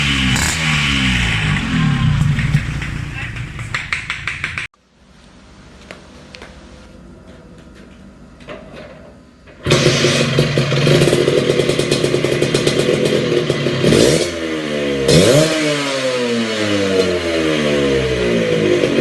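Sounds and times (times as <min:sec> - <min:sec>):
two-stroke scooter engine revving: 0:00.0 - 0:04.0, 0:09.6 - 0:19.0.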